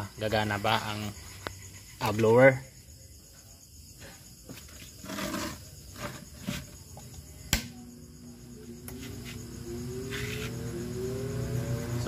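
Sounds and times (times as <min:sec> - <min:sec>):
blower motor humming: 0:08.7 - 0:12.0.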